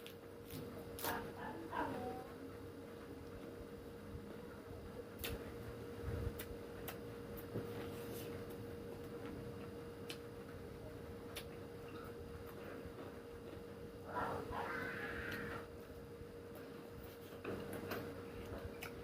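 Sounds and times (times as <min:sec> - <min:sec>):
faint steady hum: 0:00.0 - 0:19.0
mouth clicks and smacks eating: 0:18.5 - 0:19.0.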